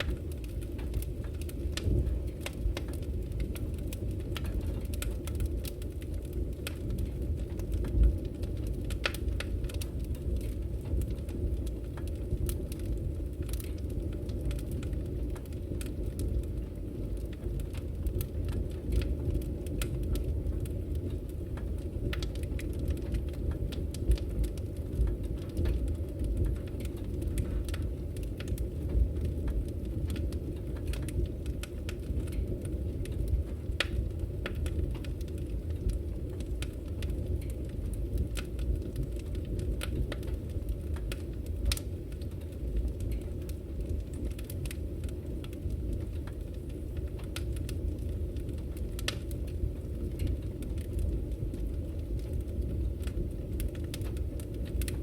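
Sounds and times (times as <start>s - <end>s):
wood fire crackling in a fireplace: 0.0s - 55.0s.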